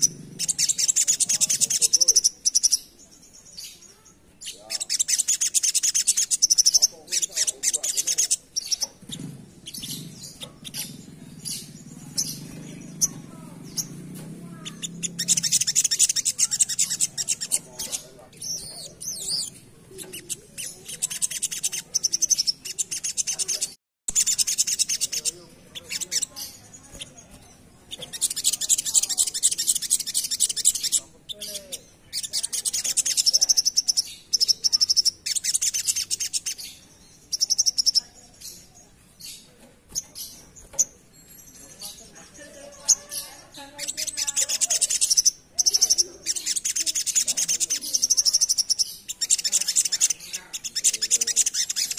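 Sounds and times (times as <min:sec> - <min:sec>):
bird twittering song: 0:00.0 - 0:51.9
low murmur: 0:06.1 - 0:33.5.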